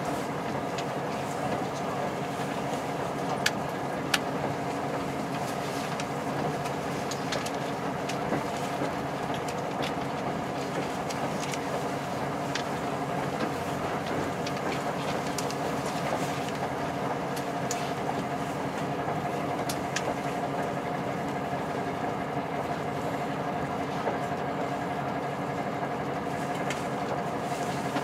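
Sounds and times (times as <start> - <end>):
train interior rumble: 0.0 - 28.0.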